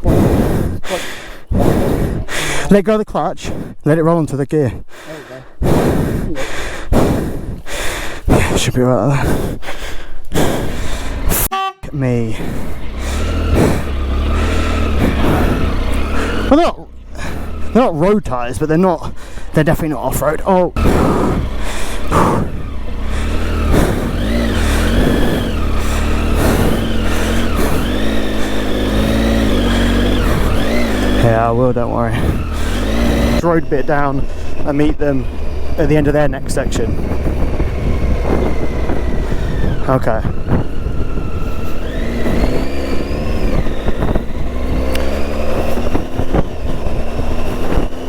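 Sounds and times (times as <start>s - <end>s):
motorcycle engine revving: 10.4s - 11.5s, 12.2s - 48.0s.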